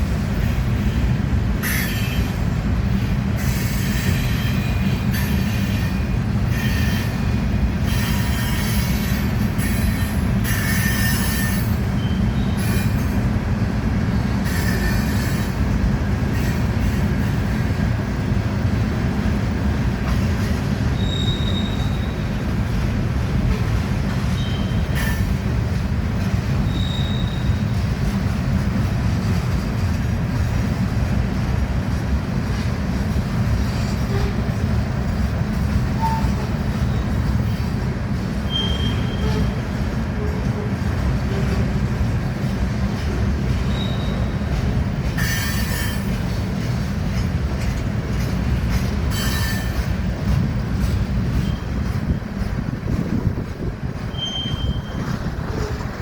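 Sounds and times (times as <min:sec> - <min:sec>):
train wheels rumbling on rail: 0:00.0 - 0:56.0
wheel squeals: 0:07.9 - 0:13.0, 0:21.0 - 0:22.2, 0:24.3 - 0:25.3, 0:26.6 - 0:27.6, 0:38.4 - 0:39.6, 0:43.7 - 0:44.5, 0:45.2 - 0:46.2, 0:49.0 - 0:50.0, 0:54.0 - 0:55.9.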